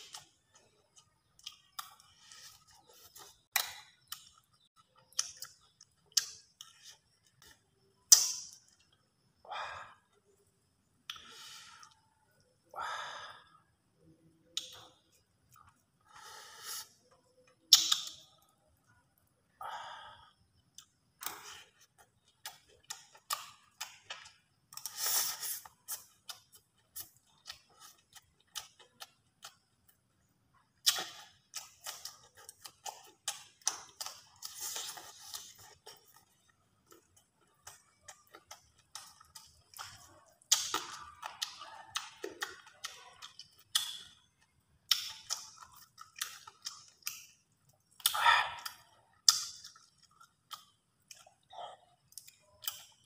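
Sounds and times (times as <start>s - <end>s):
chewing and lip smacks: 0.0s - 9.1s, 20.6s - 53.0s.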